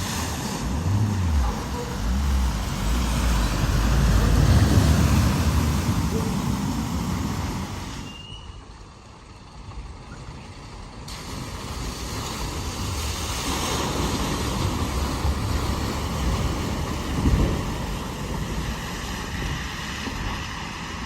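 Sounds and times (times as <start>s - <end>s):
water rushing and splashing: 0.0s - 8.2s, 11.0s - 21.0s
vehicle engine: 0.0s - 12.9s.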